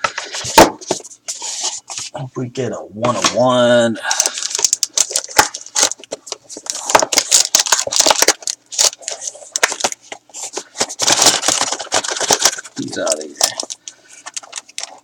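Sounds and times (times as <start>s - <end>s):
plastic wrap crinkling: 4.1s - 15.0s.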